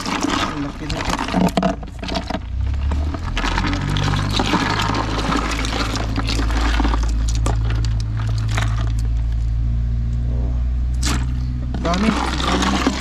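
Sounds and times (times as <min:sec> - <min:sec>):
water splashing and pouring: 0:00.0 - 0:09.2, 0:11.0 - 0:13.0
steady low hum: 0:06.0 - 0:13.0.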